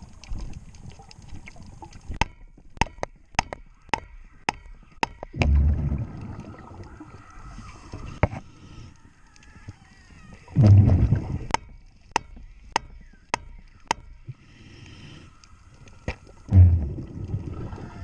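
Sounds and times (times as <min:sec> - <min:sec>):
underwater exhaled breath bubbling: 0:05.4 - 0:08.2, 0:16.5 - 0:18.0.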